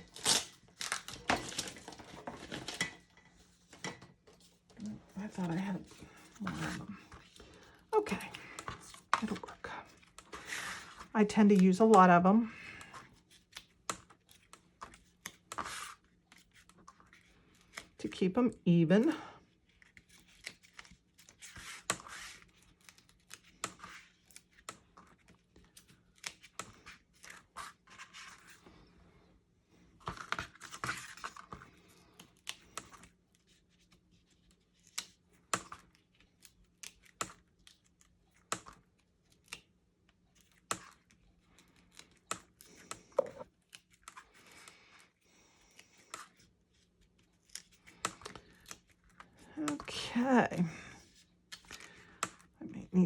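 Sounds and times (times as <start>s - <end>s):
adhesive peeling rips: 0.0s - 1.7s.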